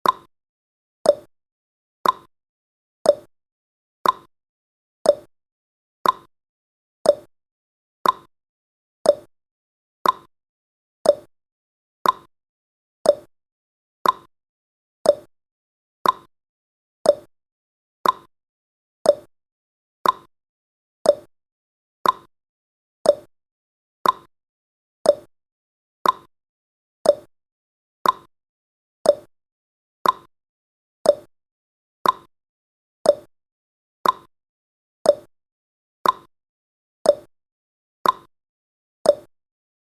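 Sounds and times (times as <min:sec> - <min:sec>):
clock ticking: 0:02.0 - 0:02.3, 0:06.0 - 0:06.3, 0:08.0 - 0:08.3, 0:10.0 - 0:10.3, 0:12.0 - 0:12.3, 0:14.0 - 0:14.3, 0:15.1 - 0:15.3, 0:16.0 - 0:16.3, 0:18.0 - 0:18.3, 0:20.0 - 0:20.3, 0:21.1 - 0:21.3, 0:22.0 - 0:22.3, 0:24.0 - 0:24.3, 0:25.1 - 0:25.3, 0:26.0 - 0:26.3, 0:27.1 - 0:27.3, 0:28.0 - 0:28.3, 0:29.1 - 0:29.3, 0:30.0 - 0:30.3, 0:31.1 - 0:31.3, 0:32.0 - 0:32.3, 0:34.0 - 0:34.3, 0:36.0 - 0:36.3, 0:38.0 - 0:38.3.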